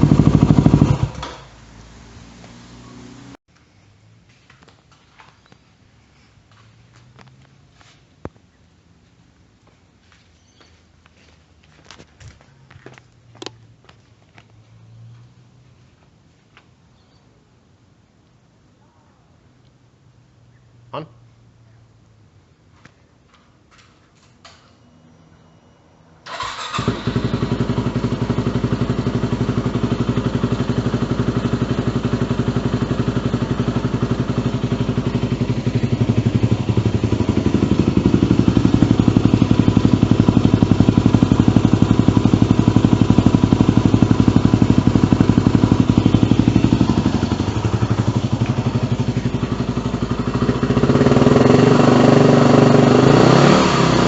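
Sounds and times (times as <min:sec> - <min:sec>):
motorcycle engine idling: 0:00.0 - 0:01.5, 0:26.3 - 0:53.8.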